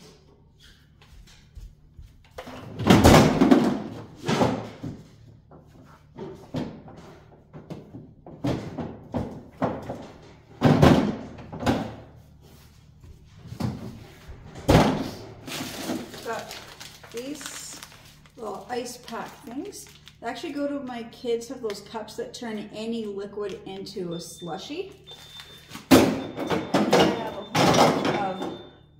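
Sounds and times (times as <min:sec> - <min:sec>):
frozen packages clunking and banging: 0:02.5 - 0:12.1, 0:13.6 - 0:20.6, 0:25.0 - 0:28.8.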